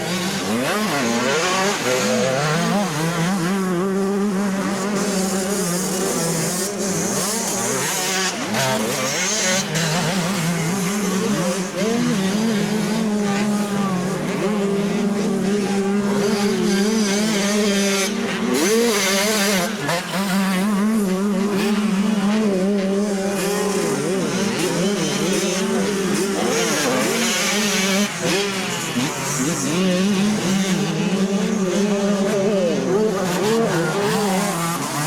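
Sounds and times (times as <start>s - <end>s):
motocross engines racing: 0.0s - 35.0s.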